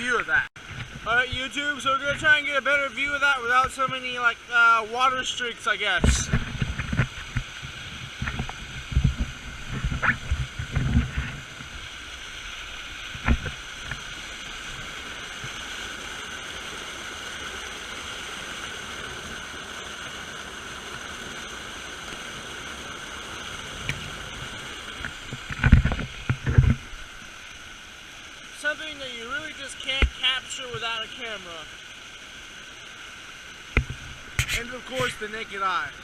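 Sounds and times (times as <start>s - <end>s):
waterfall rushing water: 0.0s - 36.0s
microphone bumps: 6.0s - 11.8s, 25.1s - 27.0s.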